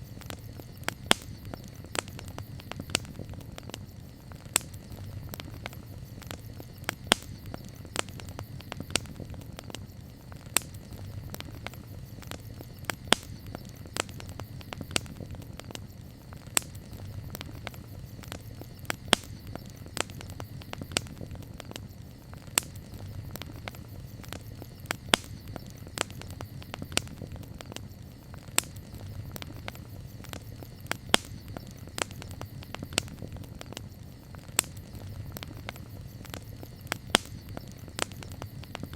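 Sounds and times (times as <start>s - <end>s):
campfire crackling: 0.0s - 38.9s.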